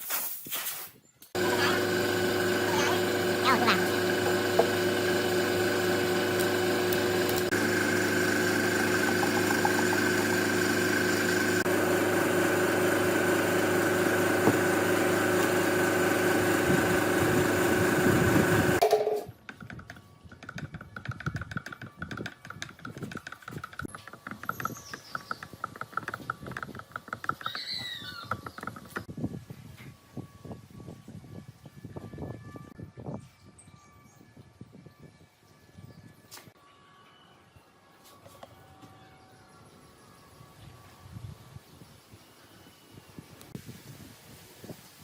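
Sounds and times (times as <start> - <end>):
power tool motor running: 1.4 - 18.9
faint rapid clicking and chirping: 19.5 - 29.1.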